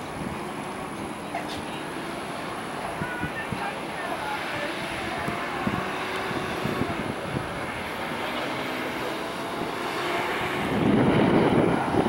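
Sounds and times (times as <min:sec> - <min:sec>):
propeller engines running: 0:00.0 - 0:12.0.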